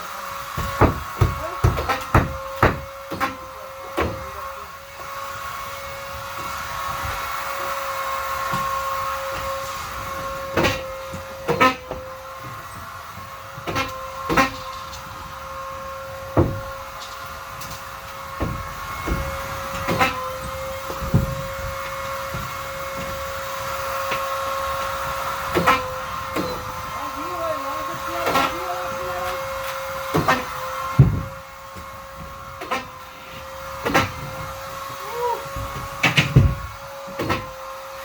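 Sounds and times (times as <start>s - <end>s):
vacuum cleaner motor whine: 0.0s - 1.7s, 2.4s - 38.0s
sharp knocks and bumps: 0.5s - 3.4s, 16.3s - 24.3s, 30.0s - 37.5s.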